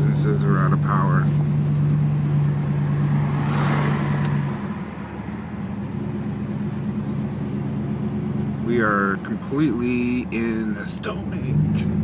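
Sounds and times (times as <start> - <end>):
car engine hum: 0.0 - 12.0.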